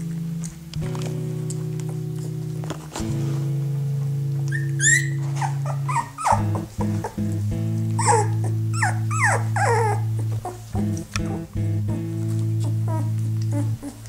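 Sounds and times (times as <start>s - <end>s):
background music with held notes: 0.0s - 14.0s
puppies whimpering and yipping: 4.5s - 14.0s.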